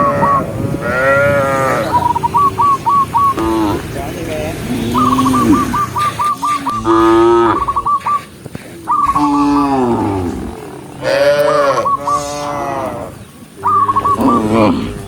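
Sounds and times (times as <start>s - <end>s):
cattle mooing: 0.0s - 15.0s
high chirping trill: 1.7s - 3.6s, 4.8s - 14.6s.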